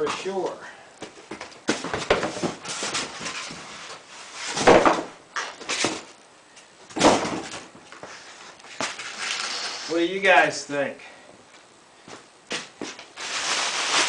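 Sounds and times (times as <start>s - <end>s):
loud rustling bursts: 12.6s - 14.0s.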